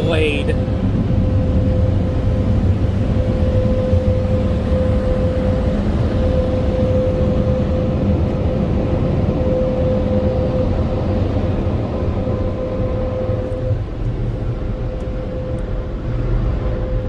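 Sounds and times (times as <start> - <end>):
blower dryers rushing air: 0.0 - 0.6.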